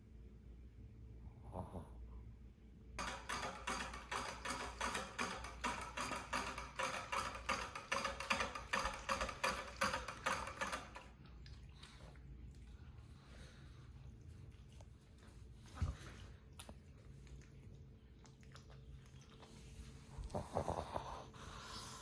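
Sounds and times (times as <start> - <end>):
dog lapping water: 8.0 - 13.1, 16.4 - 19.9.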